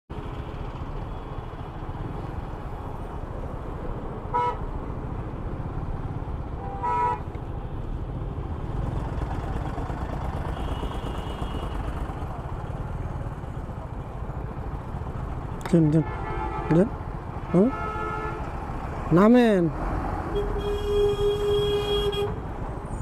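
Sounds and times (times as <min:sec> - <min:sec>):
motorcycle engine and road noise: 0:00.1 - 0:23.0
vehicle horn beeping: 0:06.6 - 0:07.2, 0:17.5 - 0:18.4, 0:20.3 - 0:22.4.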